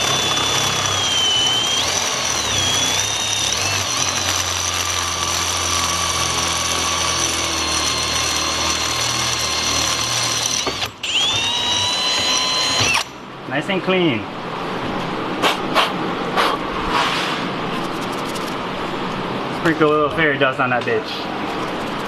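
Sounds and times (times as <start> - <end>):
power drill whining: 0.0 - 13.2.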